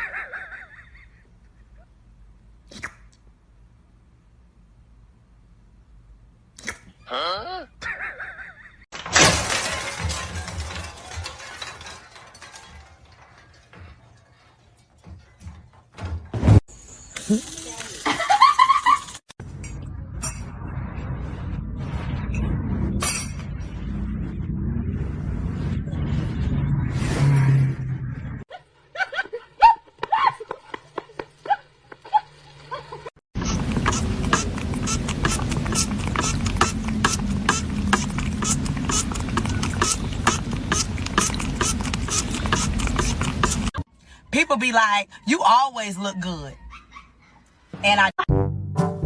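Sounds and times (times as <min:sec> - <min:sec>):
small hard objects clattering: 0:08.9 - 0:15.4, 0:16.8 - 0:19.3
dog yipping: 0:46.6 - 0:47.5.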